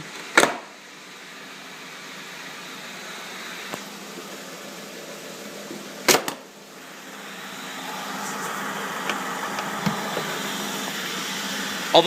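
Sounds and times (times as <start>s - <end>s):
car engine idling: 6.6s - 12.0s.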